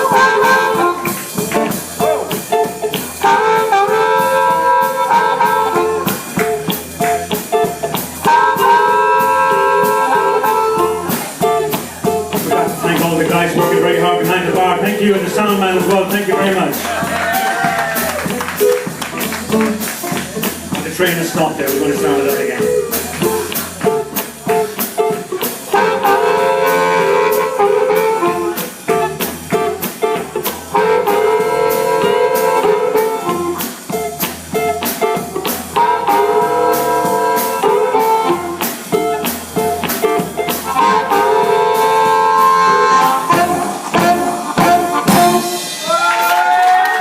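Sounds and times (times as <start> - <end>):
held horn phrase: 0.0 - 46.0
drum beat: 0.0 - 47.0
guitar: 0.0 - 47.0.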